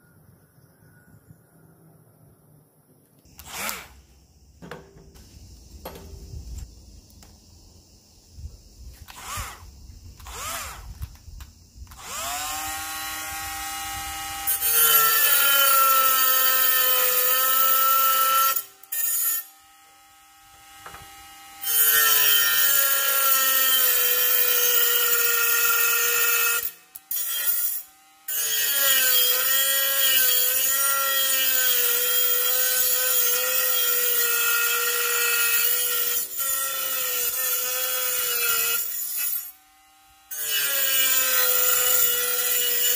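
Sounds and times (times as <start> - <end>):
angle grinder whining: 3.3 - 4.1, 9.0 - 11.2, 11.8 - 42.9.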